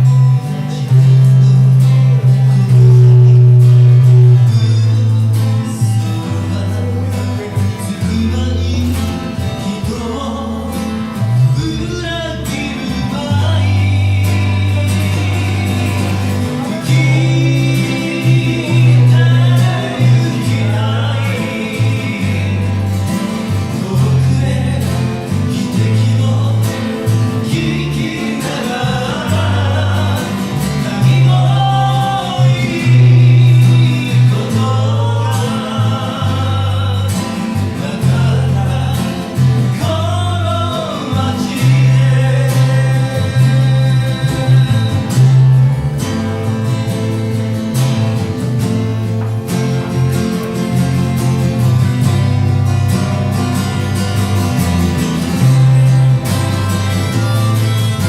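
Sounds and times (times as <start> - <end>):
person singing: 0.0 - 45.8
deep bass notes: 0.0 - 58.0
guitar: 0.0 - 58.0.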